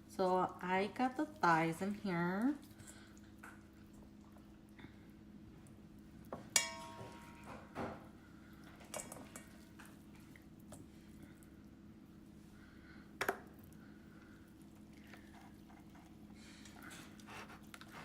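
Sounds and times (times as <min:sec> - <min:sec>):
steady low hum: 0:00.0 - 0:18.0
dish and utensils clinking: 0:06.6 - 0:07.8.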